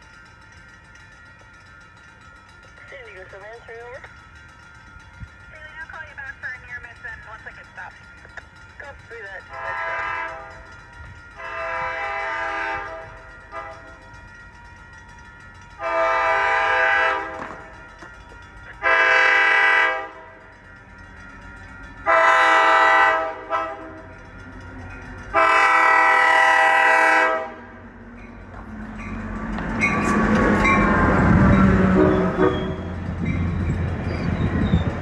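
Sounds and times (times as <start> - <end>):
train rumble: 0.0 - 35.0
train horn long blasts: 9.5 - 10.7, 11.4 - 14.0, 15.8 - 17.8, 18.8 - 20.4, 22.1 - 24.1, 25.3 - 27.8, 30.9 - 33.0.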